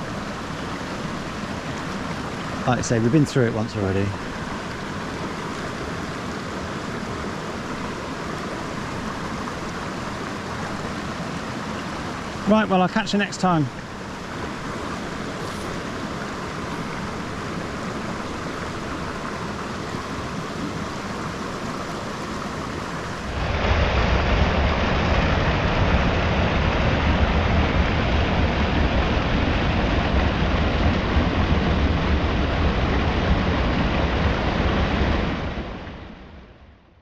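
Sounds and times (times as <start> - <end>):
stream flowing over stones: 0.0 - 35.5.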